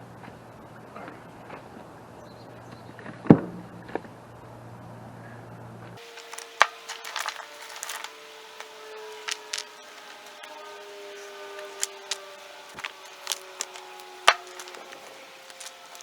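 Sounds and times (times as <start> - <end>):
rocks clacking together: 6.0 - 16.0.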